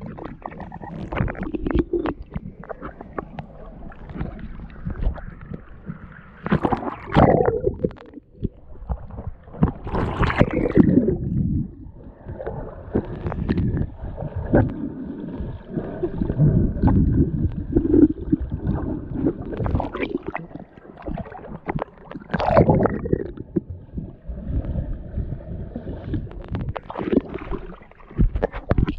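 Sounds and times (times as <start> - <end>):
river water sloshing and gurgling: 0.0 - 28.9.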